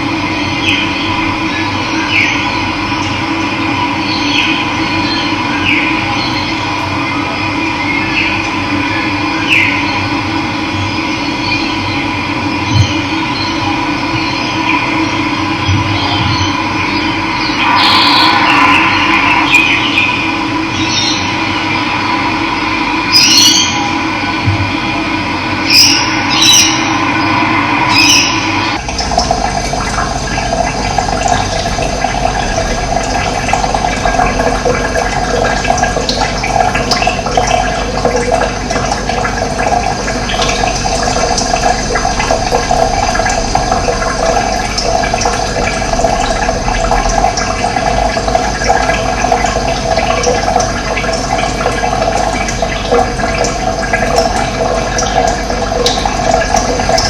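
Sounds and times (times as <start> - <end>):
running water rushing: 12.8 - 57.0.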